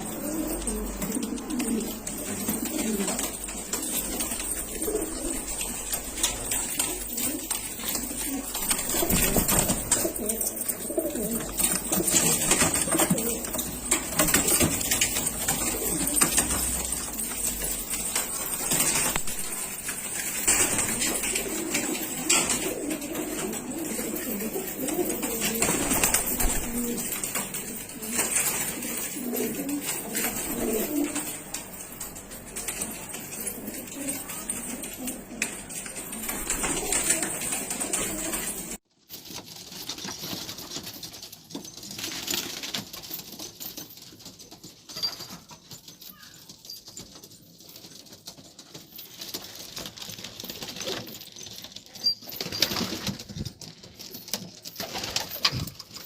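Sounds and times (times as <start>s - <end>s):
pigeons cooing: 0.0s - 19.6s, 20.4s - 38.8s.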